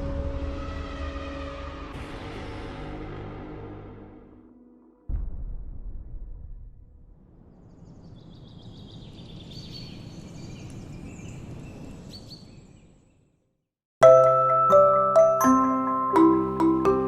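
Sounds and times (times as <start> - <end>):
small birds chirping: 7.5 - 13.4.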